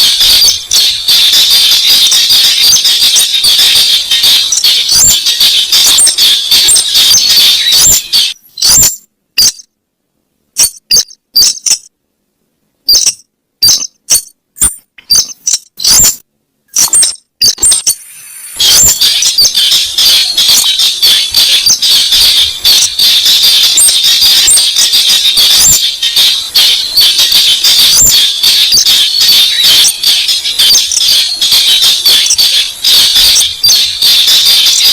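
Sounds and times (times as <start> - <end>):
steady high hiss: 17.9 - 34.9.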